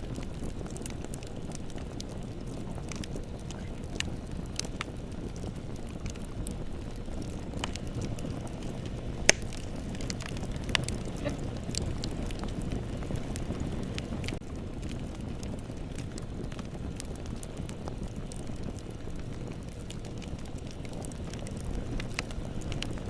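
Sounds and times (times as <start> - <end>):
fire crackles: 0.0 - 23.0
rush of bonfire flames: 0.0 - 23.0
sharp loud pop: 9.3 - 9.5.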